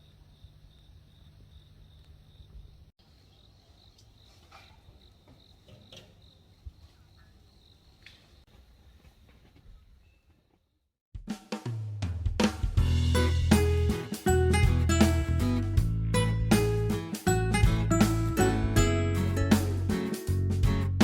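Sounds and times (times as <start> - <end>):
crickets chirping: 0.0 - 10.2.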